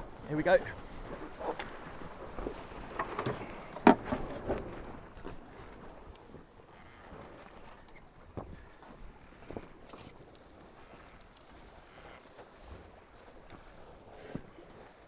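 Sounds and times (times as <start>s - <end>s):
knocks and rattles from boat: 0.0s - 10.2s.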